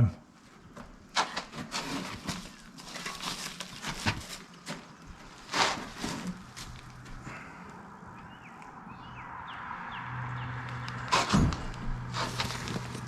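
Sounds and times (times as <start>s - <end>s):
rasping scrape of wood: 1.2s - 4.4s, 5.2s - 6.9s, 11.0s - 13.0s.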